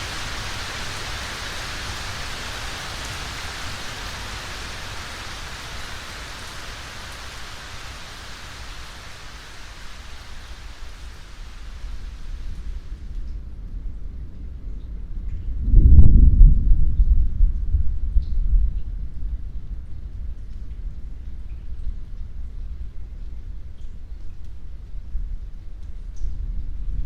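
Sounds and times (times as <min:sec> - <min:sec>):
steady rain falling: 0:00.0 - 0:15.6, 0:17.1 - 0:27.0
low rumble: 0:10.9 - 0:19.6.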